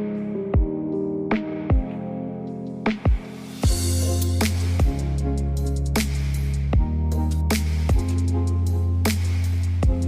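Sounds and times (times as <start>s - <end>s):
electronic music with drums: 0.0s - 10.0s.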